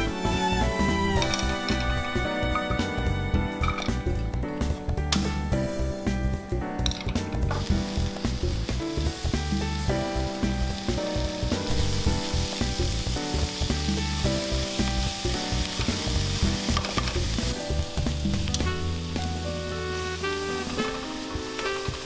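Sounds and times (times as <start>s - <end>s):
background music with bass line: 0.0s - 22.0s
onion sizzling in a frying pan: 7.5s - 22.0s.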